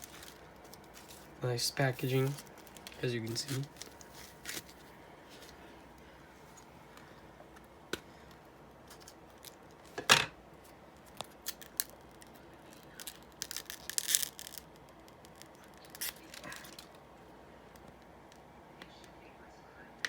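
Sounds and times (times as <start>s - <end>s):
packaging clicks and rustles: 0.0s - 5.6s, 11.0s - 17.0s
packaging crinkling: 0.0s - 5.7s, 11.0s - 17.0s.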